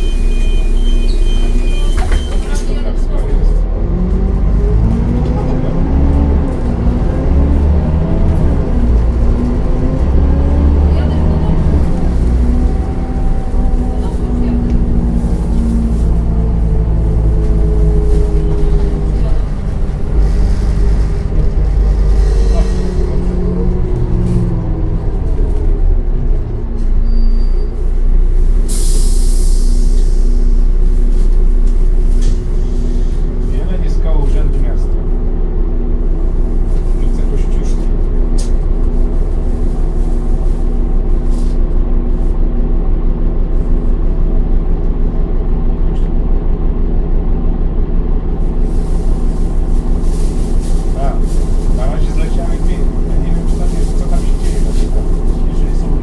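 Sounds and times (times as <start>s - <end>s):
short high beep: 0.0s - 2.5s, 27.0s - 27.7s
bus diesel engine running: 0.0s - 56.0s
hiss: 28.7s - 30.3s.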